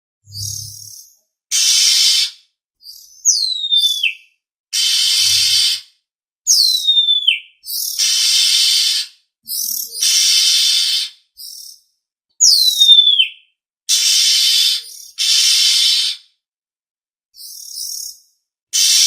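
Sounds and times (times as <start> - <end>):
bird whistle sliding down: 0.3 - 0.8
harsh hissy bird churring: 1.5 - 2.3, 4.8 - 5.8, 7.9 - 11.1, 13.9 - 16.2, 18.8 - 19.0.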